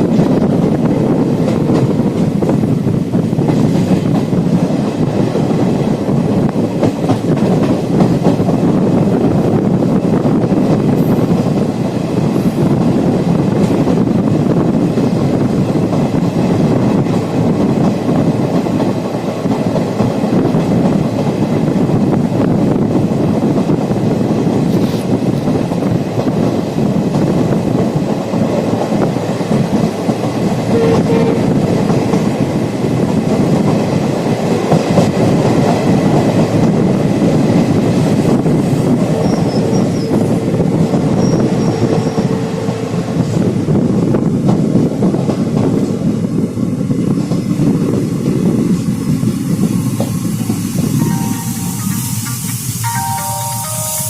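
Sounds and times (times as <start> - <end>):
train wheels rumbling on rails: 0.0 - 54.0
thin steady tone: 50.8 - 54.0.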